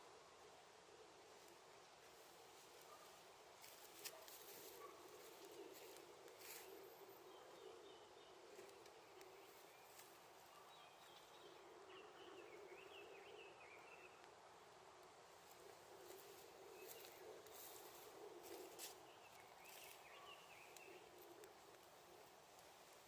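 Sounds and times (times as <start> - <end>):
small wood fire crackling: 1.2 - 6.8, 8.4 - 10.6, 15.0 - 23.0
faint bird chirps: 4.5 - 14.3, 15.4 - 22.3.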